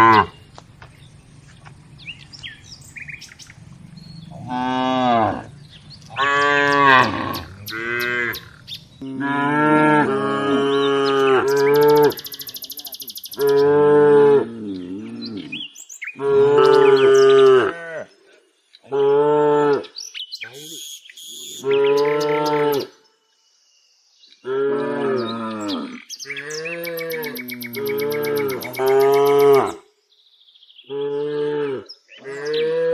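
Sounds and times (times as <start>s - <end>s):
cattle mooing: 0.0s - 0.4s, 3.6s - 12.3s
high chirping or buzzing: 11.1s - 13.6s, 20.5s - 22.6s.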